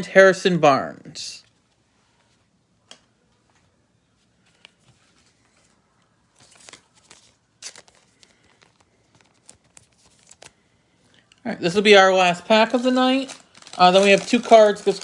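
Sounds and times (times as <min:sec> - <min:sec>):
cards clicking and rustling: 0:04.5 - 0:10.6
foil wrapper crinkling and tearing: 0:06.4 - 0:10.6, 0:11.8 - 0:15.0.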